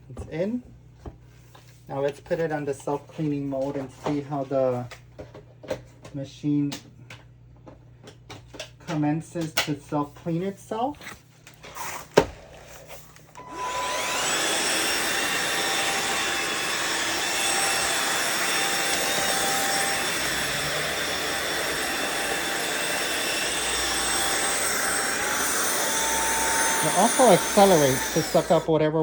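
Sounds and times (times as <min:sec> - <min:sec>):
suction motor whining: 0:13.4 - 0:28.7.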